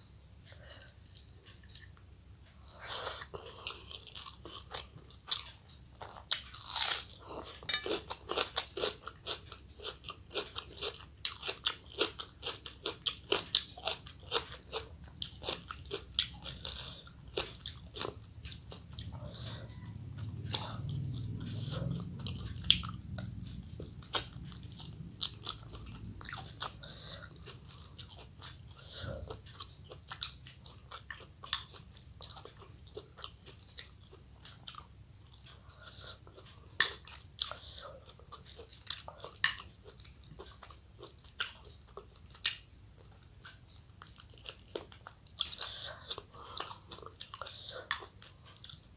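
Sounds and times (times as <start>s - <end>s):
person chewing crunchy food: 0.4s - 48.9s
low hum: 16.3s - 29.4s.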